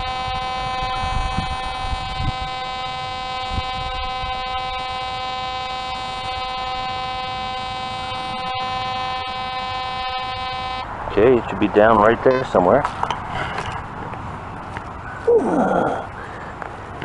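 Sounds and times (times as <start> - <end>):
metal detector low buzzing tone: 0.0 - 11.0.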